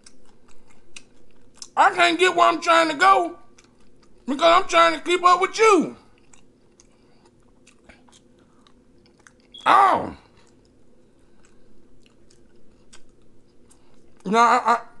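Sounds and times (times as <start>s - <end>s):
man chewing food: 0.0s - 1.8s, 3.4s - 4.3s, 6.0s - 14.3s
man saying oh: 9.6s - 10.2s, 14.3s - 15.0s.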